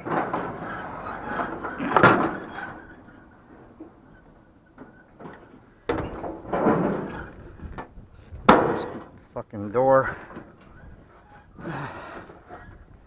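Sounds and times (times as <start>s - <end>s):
door rattling and scraping: 0.0s - 3.9s, 4.8s - 9.2s.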